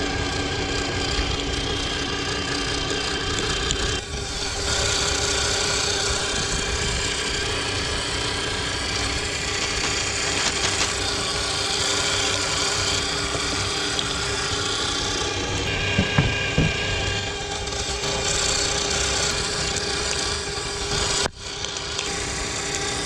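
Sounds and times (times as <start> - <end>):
meat grinder grinding: 0.0 - 23.0
sharp knocks: 15.7 - 17.1.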